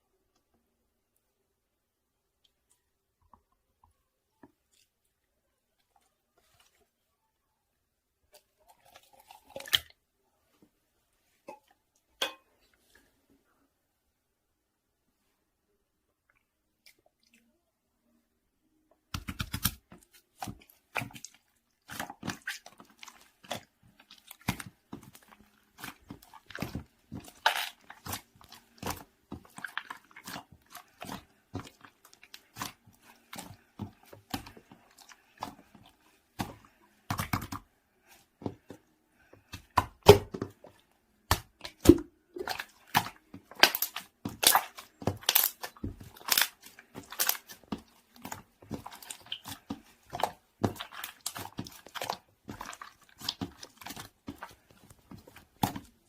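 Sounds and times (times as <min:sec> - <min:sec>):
slime squishing with sticky pops: 0:19.1 - 0:37.7, 0:39.4 - 0:56.0.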